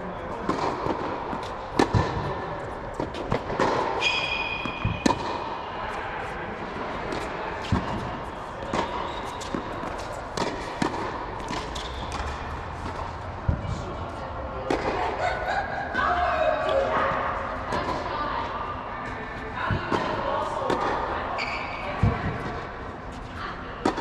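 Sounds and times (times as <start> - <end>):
tennis balls bouncing on court: 0.3 - 15.2, 19.0 - 24.0
tennis balls struck by rackets: 0.3 - 15.2, 19.0 - 21.1, 22.0 - 24.0.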